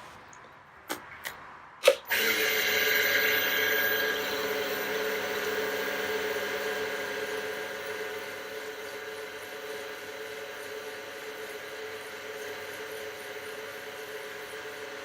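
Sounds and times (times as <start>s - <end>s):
wood lathe motor hum and whine: 2.1s - 15.0s.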